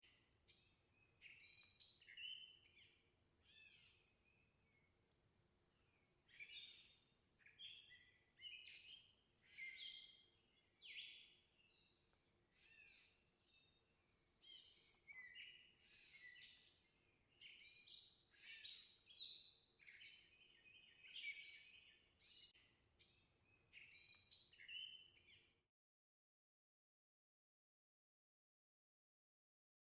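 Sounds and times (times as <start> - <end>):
songbirds chirping and trilling: 0.2 - 25.6.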